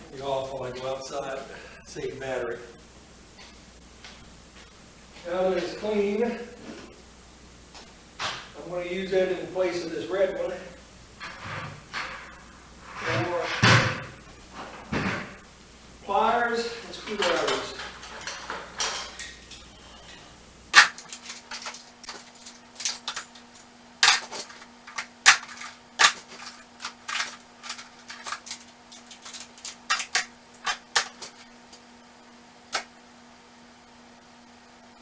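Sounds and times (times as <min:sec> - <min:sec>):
faint steady hum: 0:00.0 - 0:35.0
metal tools clanking into toolbox: 0:20.8 - 0:31.5.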